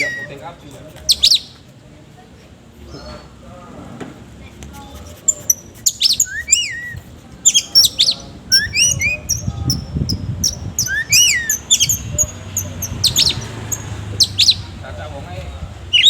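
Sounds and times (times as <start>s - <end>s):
magpie-robin singing: 0.0s - 1.7s, 5.2s - 14.9s, 15.8s - 16.0s.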